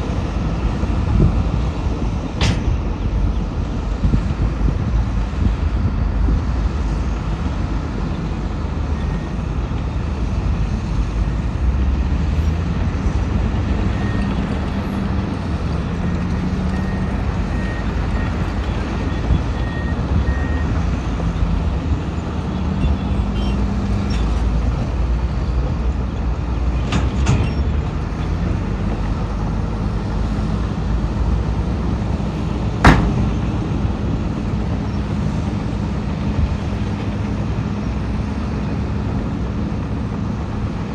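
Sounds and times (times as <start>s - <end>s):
heavy diesel machinery rumbling: 0.0s - 40.9s
sharp bang: 32.8s - 33.4s.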